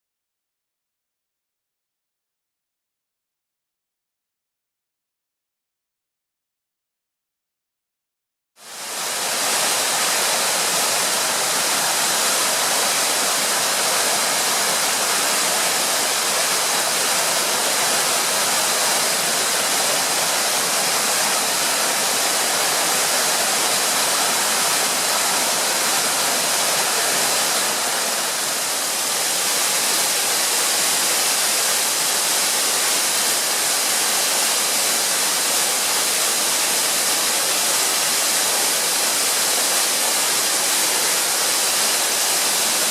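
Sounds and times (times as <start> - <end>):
waterfall rushing: 8.6 - 42.9.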